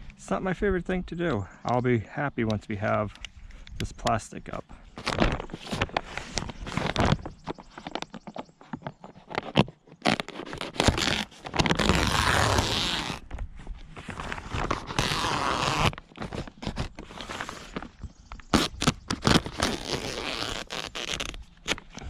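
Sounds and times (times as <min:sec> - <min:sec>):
plastic sheeting rustling: 0:13.9 - 0:17.9.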